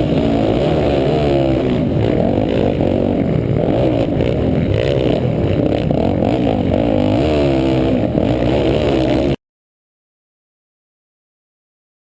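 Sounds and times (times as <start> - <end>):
motorcycle engines revving: 0.0 - 9.4.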